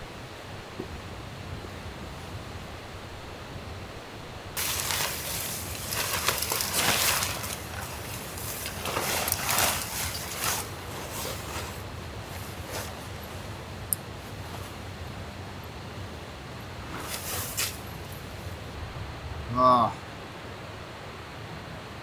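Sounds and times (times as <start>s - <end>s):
rustling and crunching handling: 4.6s - 18.7s.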